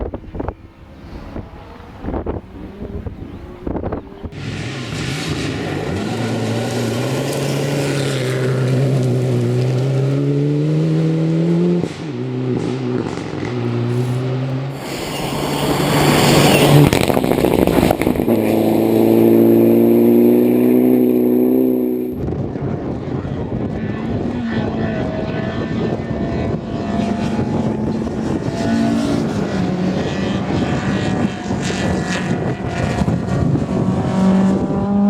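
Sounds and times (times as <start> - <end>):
rally car engine accelerating: 0.0 - 35.0
rushing noise: 11.9 - 21.2.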